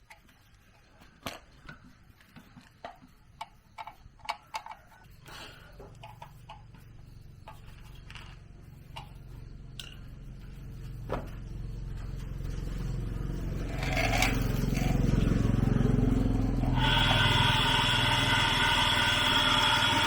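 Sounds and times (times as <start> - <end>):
small engine running: 7.6 - 20.0.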